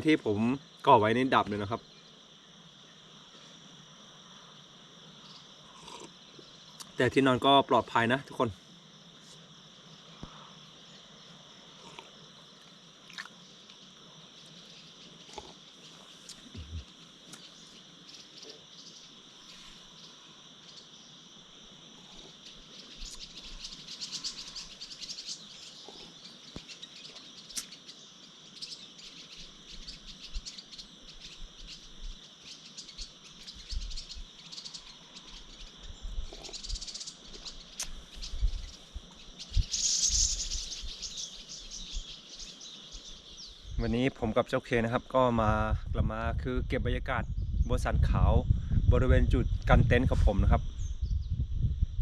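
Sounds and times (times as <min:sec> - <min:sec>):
high insect drone: 0:00.0 - 0:52.0
birds chirping and calling: 0:14.3 - 0:20.9, 0:22.0 - 0:44.2
soft low thumps: 0:16.5 - 0:16.9.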